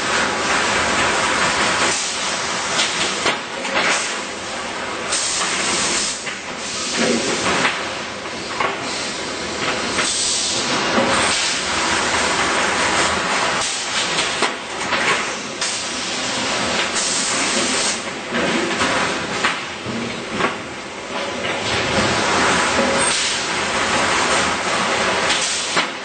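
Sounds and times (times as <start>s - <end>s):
welding machine hissing: 5.1s - 7.7s, 8.4s - 14.5s, 15.1s - 18.2s, 22.0s - 25.9s.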